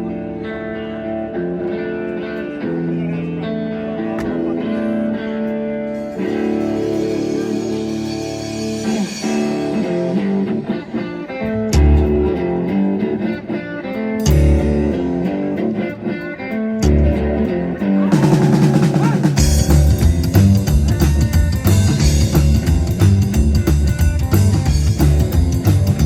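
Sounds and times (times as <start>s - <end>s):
band playing guitar-led music: 0.0s - 26.0s
cymbals: 6.0s - 10.6s.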